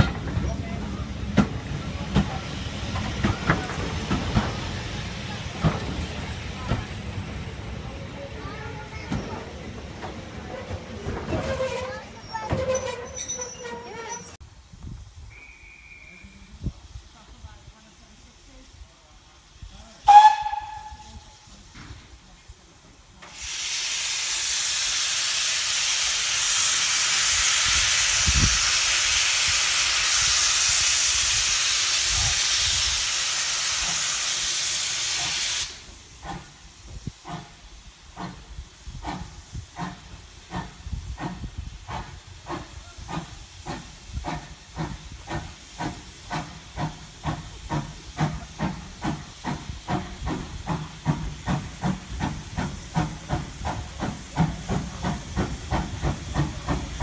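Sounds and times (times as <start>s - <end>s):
loud steam hiss: 0.0s - 57.0s
steam locomotive exhaust beats: 14.4s - 57.0s.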